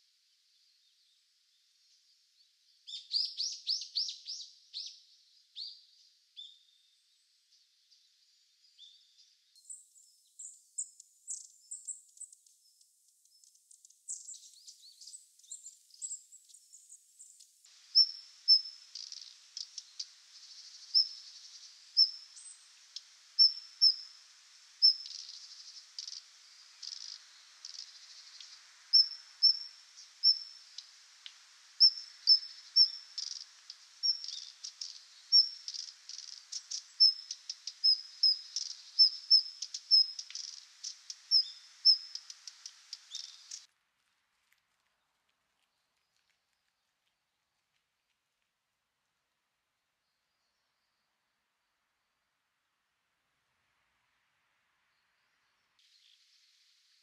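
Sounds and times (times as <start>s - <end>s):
thin high bird calls: 14.1s - 43.7s.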